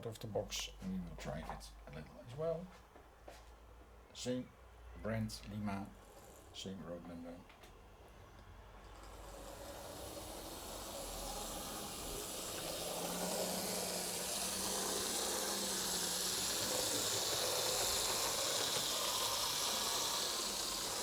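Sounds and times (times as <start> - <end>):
model train whirring: 5.0 - 21.0.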